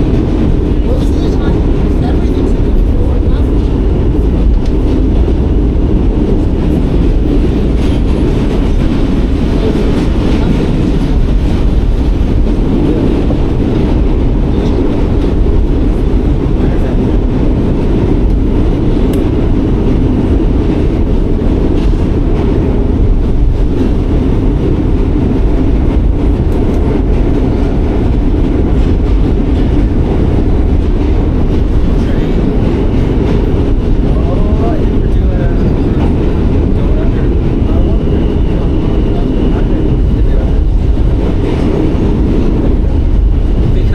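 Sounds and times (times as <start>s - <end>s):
subway train rumbling on track: 0.0s - 43.9s.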